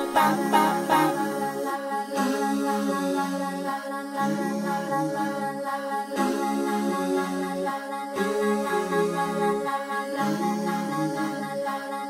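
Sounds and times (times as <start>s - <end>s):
pitched notes striking: 0.0s - 1.2s.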